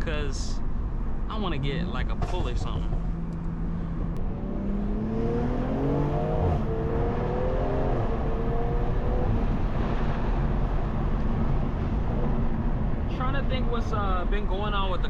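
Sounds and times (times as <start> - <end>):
car engine accelerating: 1.3 - 13.2.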